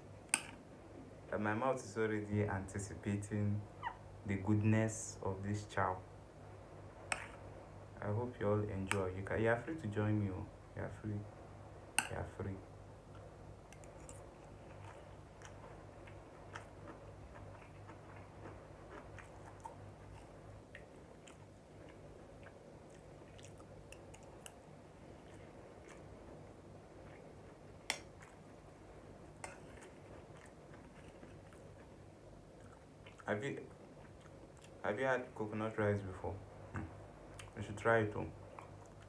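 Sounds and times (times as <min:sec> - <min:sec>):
person chewing food: 0:13.1 - 0:28.5, 0:29.4 - 0:34.8.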